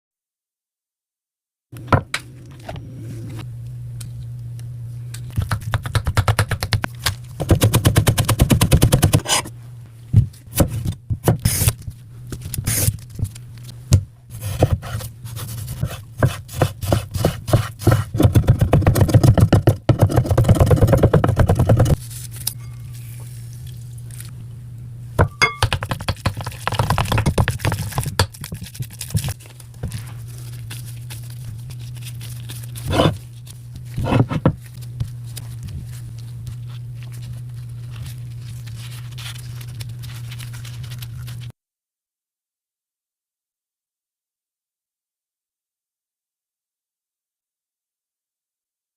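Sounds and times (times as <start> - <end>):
steady low hum: 1.8 - 41.5
knife scrapes: 9.2 - 9.6, 32.6 - 33.3, 33.9 - 34.5
knife chopping on cutting board: 15.8 - 22.0, 32.9 - 33.2, 34.0 - 34.6.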